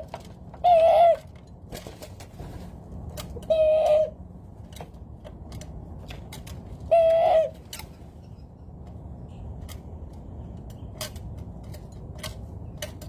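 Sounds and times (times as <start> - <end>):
dove calling: 0.0 - 1.3, 3.4 - 4.2, 6.8 - 7.8.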